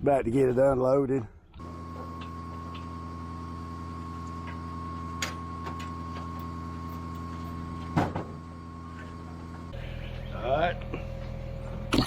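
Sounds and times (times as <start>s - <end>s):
truck engine idling: 9.7s - 11.9s.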